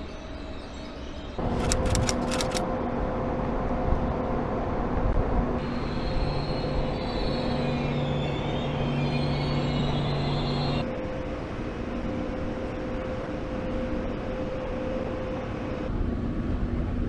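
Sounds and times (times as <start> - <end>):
train rumble with low hum: 0.0 - 17.0
high whine: 1.4 - 16.2
sharp clicks: 1.5 - 2.6.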